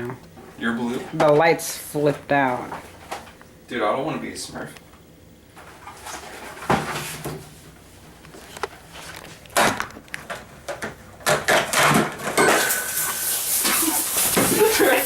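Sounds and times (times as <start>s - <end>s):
drink cans knocking and clattering: 9.6s - 15.0s
can spraying hiss: 12.5s - 15.0s.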